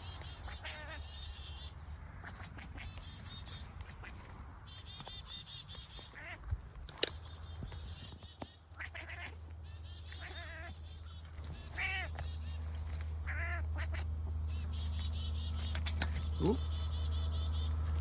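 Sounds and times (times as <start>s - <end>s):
cat chattering: 0.4s - 1.1s, 10.1s - 10.7s, 11.6s - 12.2s, 13.2s - 14.1s, 16.2s - 16.9s.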